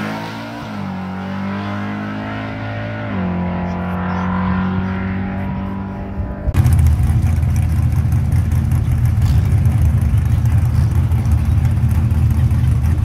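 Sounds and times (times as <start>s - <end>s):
pickup engine idling loudly: 6.6s - 13.0s.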